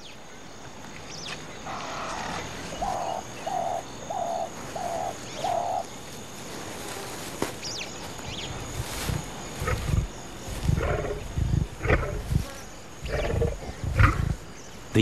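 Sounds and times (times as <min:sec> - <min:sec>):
birds chirping: 0:00.0 - 0:06.2, 0:06.9 - 0:15.0
bird hooting: 0:01.6 - 0:05.9.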